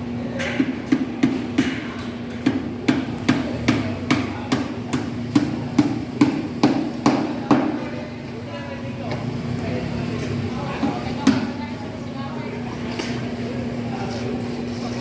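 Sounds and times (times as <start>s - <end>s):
hammer striking: 0.4s - 7.8s.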